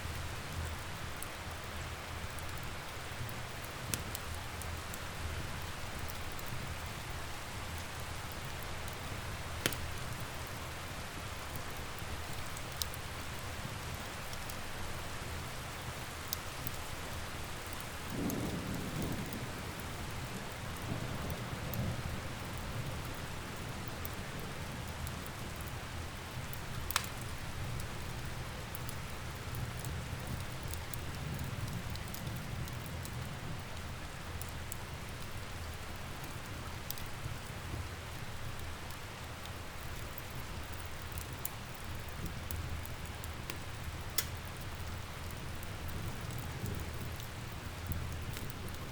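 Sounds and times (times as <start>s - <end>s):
steady rain: 0.0s - 48.9s
wood fire crackling: 0.0s - 48.9s
soft roll of thunder: 18.1s - 23.1s.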